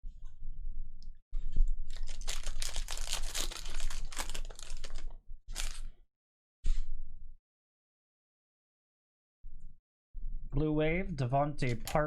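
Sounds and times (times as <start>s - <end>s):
trading cards flipping and clicking: 2.9s - 5.1s, 11.6s - 12.0s.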